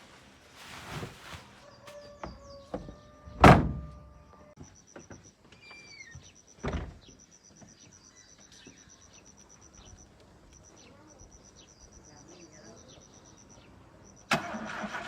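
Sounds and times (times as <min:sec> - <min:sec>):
crickets trilling: 0:09.0 - 0:14.7.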